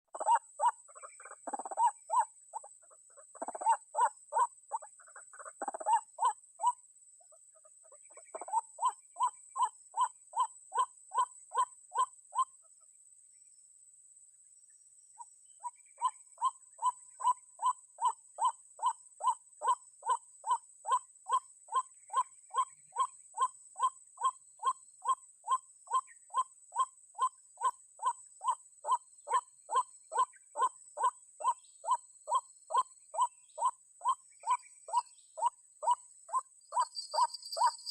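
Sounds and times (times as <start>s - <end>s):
waterhen croaking calls: 0.2s - 2.7s.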